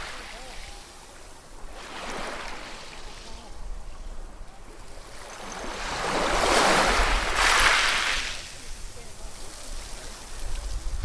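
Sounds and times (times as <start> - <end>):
wave breaking: 5.2 - 8.8.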